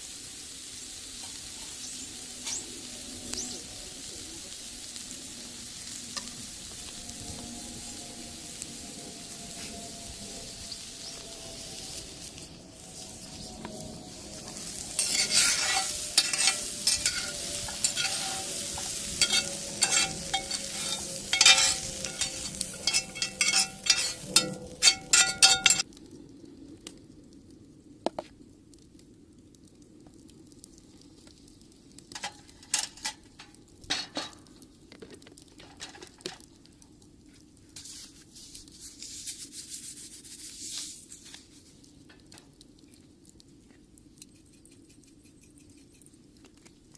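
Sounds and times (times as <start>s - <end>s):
eggs sizzling in skillet: 0.0s - 25.9s, 30.0s - 46.9s
utensil scraping pan: 14.4s - 25.8s.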